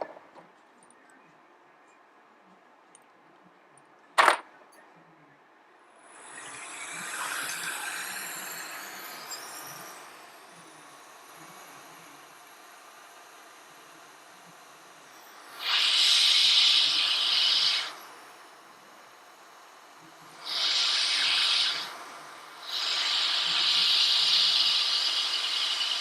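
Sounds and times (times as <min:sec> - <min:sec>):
hot air station hissing: 0:06.0 - 0:26.0.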